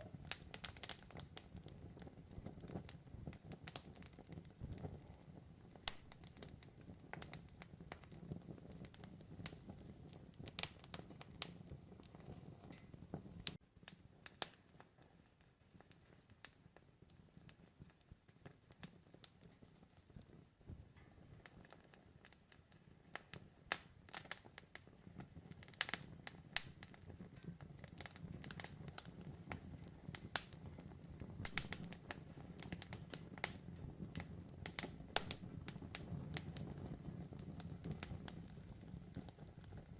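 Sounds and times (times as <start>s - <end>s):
flames rumbling: 0.0s - 39.9s
wood crackling and popping: 0.0s - 39.9s.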